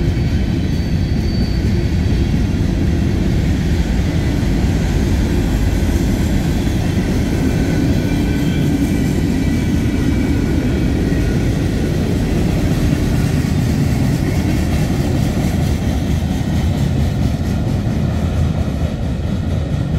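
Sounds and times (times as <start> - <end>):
faint high wheel squeal: 0.0 - 4.2, 6.0 - 15.3
freight cars rumbling on rails: 0.0 - 19.9.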